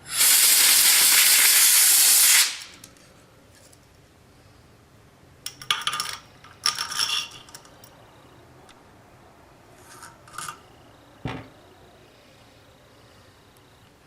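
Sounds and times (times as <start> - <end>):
metal parts clinking and scraping: 5.5 - 8.0, 9.8 - 10.6.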